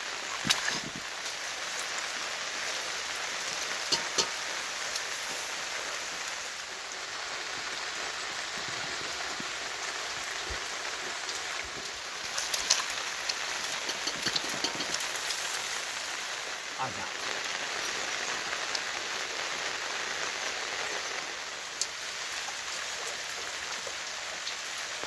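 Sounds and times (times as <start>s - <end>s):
rain falling: 0.0s - 25.0s
sharp drip-like taps: 3.8s - 5.0s, 11.3s - 15.4s.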